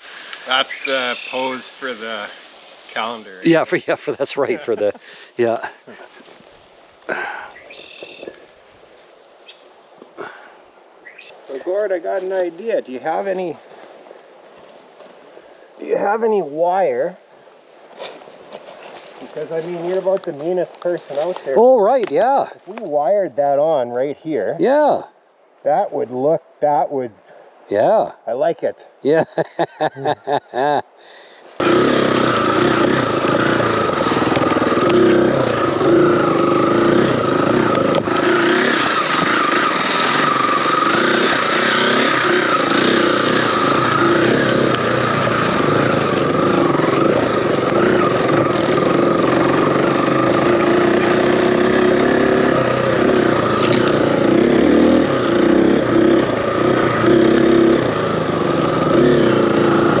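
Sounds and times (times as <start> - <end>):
dirt bike engine revving: 0.5 - 5.0, 31.6 - 60.0.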